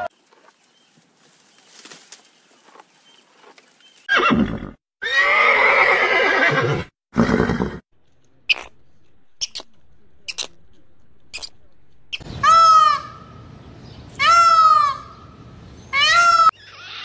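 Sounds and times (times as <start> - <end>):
horse whinnying: 4.1 - 7.8.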